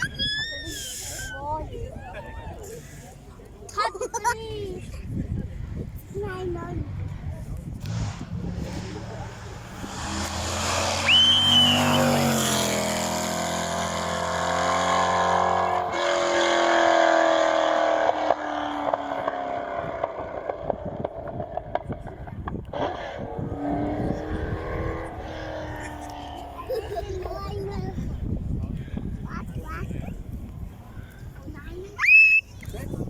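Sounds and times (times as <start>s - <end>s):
racing car engine accelerating: 7.8s - 26.8s.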